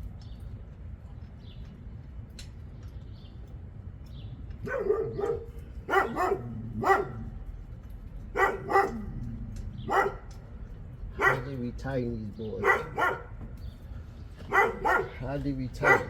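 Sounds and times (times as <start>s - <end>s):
dog barking: 4.6s - 7.4s, 8.3s - 10.4s, 11.1s - 11.6s, 12.5s - 13.4s, 14.4s - 16.0s.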